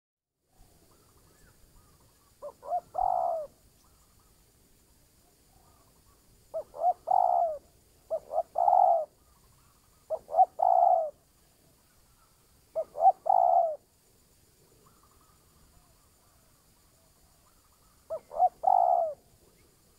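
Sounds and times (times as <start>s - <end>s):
dove cooing: 2.4s - 3.6s, 6.5s - 9.2s, 10.0s - 11.2s, 12.7s - 13.9s, 18.1s - 19.6s.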